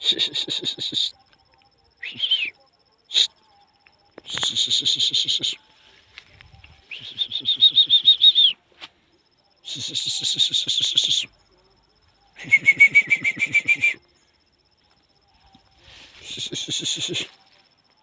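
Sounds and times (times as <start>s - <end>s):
high-pitched chattering animal calls: 0.0s - 1.2s, 4.2s - 5.6s, 9.6s - 11.3s, 16.2s - 17.4s.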